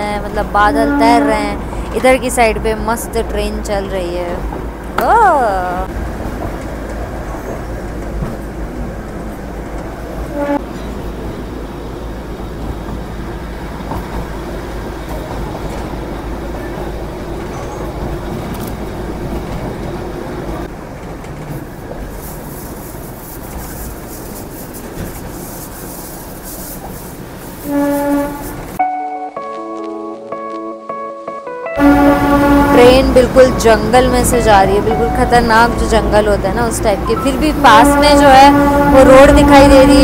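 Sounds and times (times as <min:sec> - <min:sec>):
train running: 0:00.0 - 0:28.8, 0:31.8 - 0:40.0
train horn: 0:00.7 - 0:01.6, 0:10.2 - 0:10.7, 0:27.6 - 0:29.6, 0:31.6 - 0:35.4, 0:37.6 - 0:40.0
music: 0:28.8 - 0:35.4.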